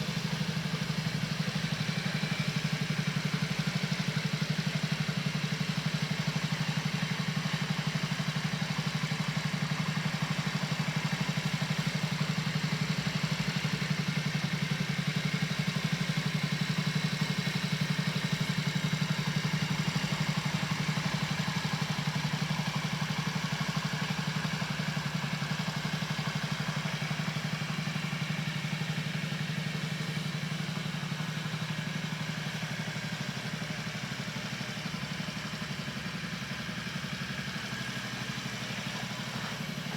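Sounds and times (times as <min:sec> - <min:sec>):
scooter engine idling: 0:00.0 - 0:39.9.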